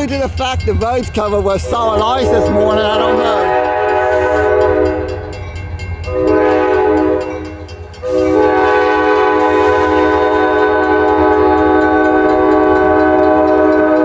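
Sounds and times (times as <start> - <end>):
locomotive air horn blasts: 1.6 - 5.2, 6.1 - 7.3, 8.0 - 14.0.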